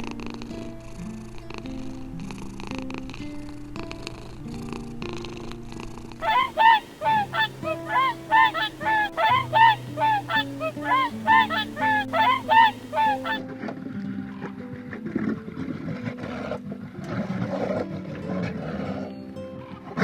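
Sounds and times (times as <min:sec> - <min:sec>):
goose honking: 0:06.2 - 0:13.4.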